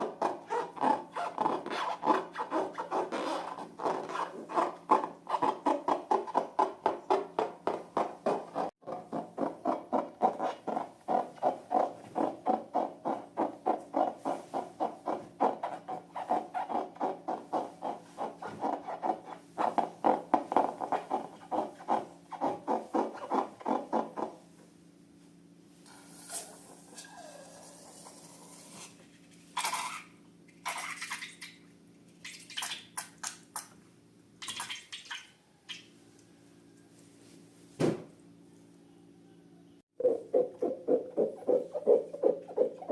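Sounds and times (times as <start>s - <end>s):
fast rubbing strokes: 8.3s - 24.5s, 25.9s - 30.1s.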